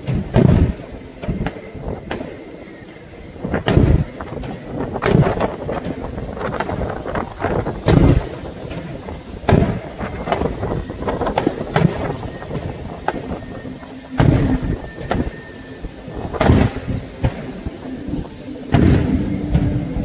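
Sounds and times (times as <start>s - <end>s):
fireworks booming: 0.0s - 20.0s
fireworks crackling: 0.0s - 20.0s.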